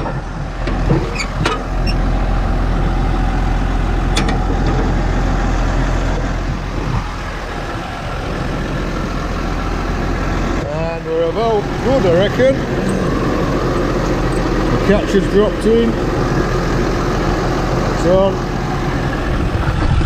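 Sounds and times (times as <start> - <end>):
tractor diesel engine idling: 0.0 - 19.9.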